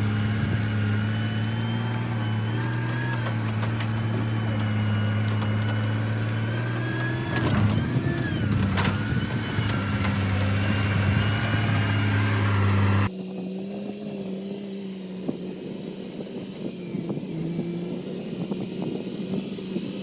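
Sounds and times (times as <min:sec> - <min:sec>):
heavy diesel engine running: 0:00.0 - 0:13.1.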